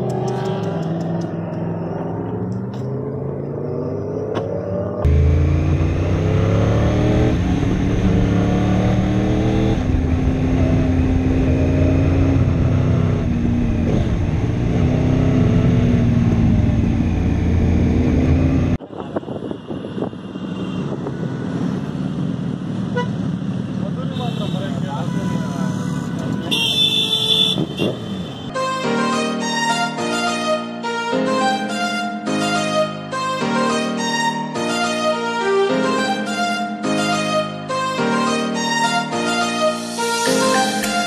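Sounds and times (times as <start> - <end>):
motorcycle engine accelerating: 0.0 - 18.8.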